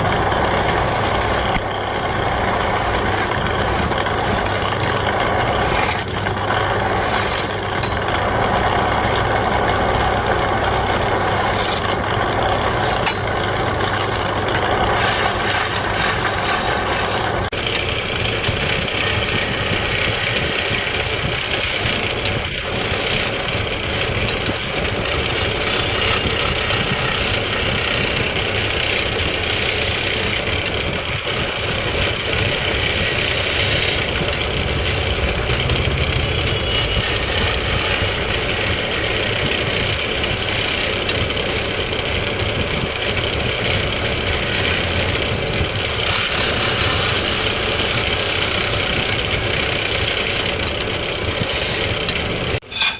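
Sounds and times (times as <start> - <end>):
turning tool scraping wood: 0.0 - 17.6, 42.9 - 52.9
wood lathe running: 0.0 - 52.9.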